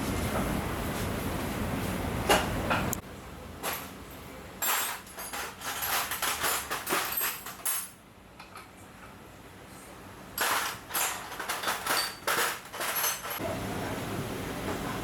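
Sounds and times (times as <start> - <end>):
metallic clinks and rattles: 4.6 - 8.0, 10.4 - 13.4.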